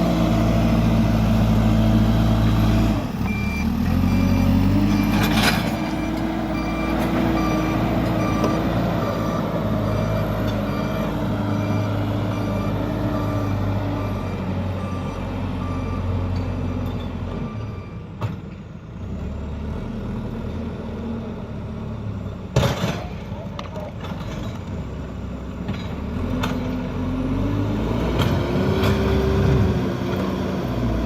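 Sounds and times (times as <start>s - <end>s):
diesel engine under load: 0.0s - 31.0s
reversing alarm beeping: 3.2s - 18.0s.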